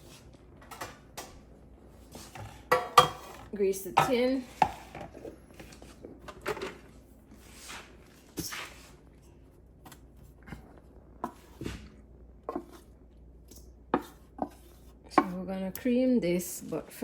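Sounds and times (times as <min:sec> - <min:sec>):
kitchen items clicking and knocking: 0:02.3 - 0:05.4.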